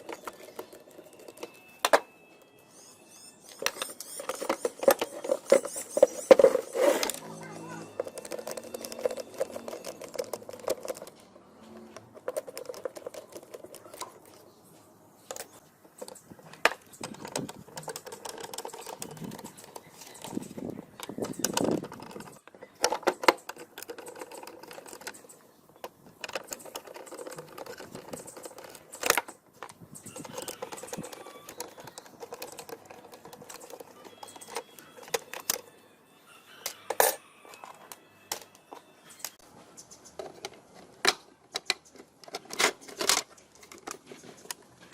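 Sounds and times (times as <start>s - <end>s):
hand tools clicking on metal parts: 0.0s - 2.1s, 3.4s - 11.4s, 12.0s - 14.5s, 15.2s - 35.7s, 36.6s - 44.9s.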